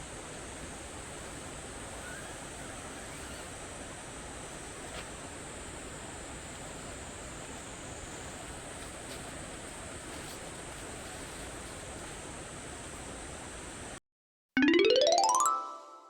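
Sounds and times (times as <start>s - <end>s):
rushing hiss: 0.0s - 14.0s.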